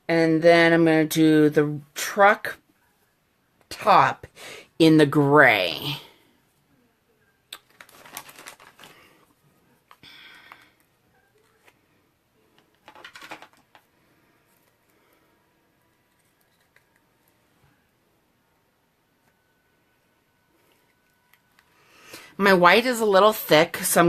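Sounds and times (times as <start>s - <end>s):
craft supplies rustling and scraping: 7.7s - 10.6s, 12.6s - 13.9s.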